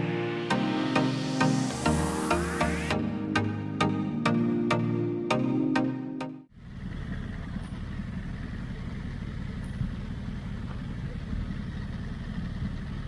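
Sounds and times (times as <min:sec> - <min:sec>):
music track: 0:00.0 - 0:06.5
motorcycle engine running: 0:06.5 - 0:13.0.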